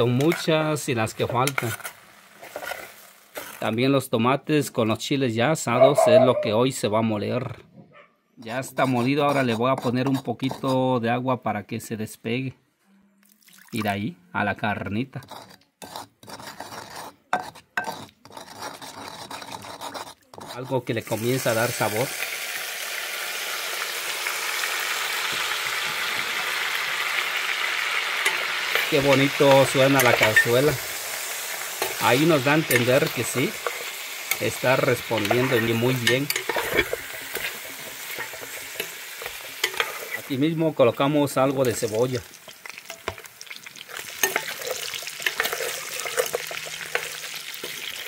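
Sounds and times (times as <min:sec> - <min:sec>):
meat sizzling in a clay pot: 0:00.0 - 0:03.8, 0:20.4 - 0:48.0.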